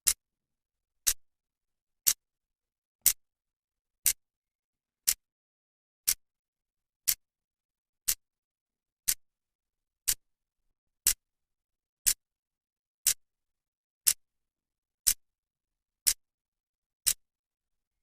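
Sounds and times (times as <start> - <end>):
clock ticking: 9.0 - 9.2, 10.0 - 10.2.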